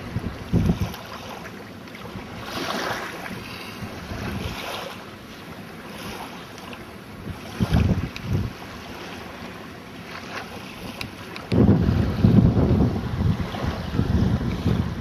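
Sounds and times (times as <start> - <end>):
rushing wind noise: 0.0 - 0.9, 7.2 - 8.6, 11.4 - 15.0
wind buffeting microphone: 0.0 - 1.1, 3.2 - 4.8, 7.1 - 8.8, 10.8 - 15.0.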